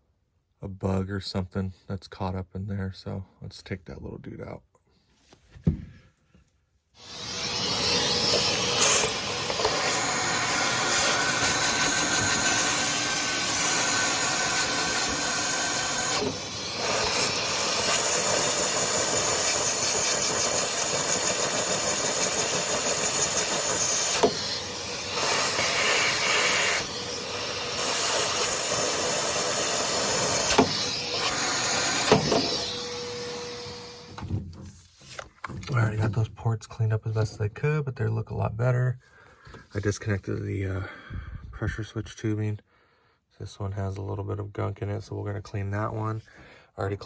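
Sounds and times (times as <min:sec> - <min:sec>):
shop vacuum running: 0:07.0 - 0:35.9.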